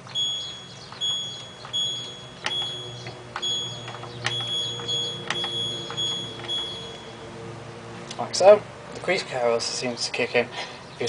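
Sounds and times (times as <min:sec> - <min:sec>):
button clicks: 0:00.1 - 0:07.0
short high electronic beeps: 0:00.1 - 0:07.2.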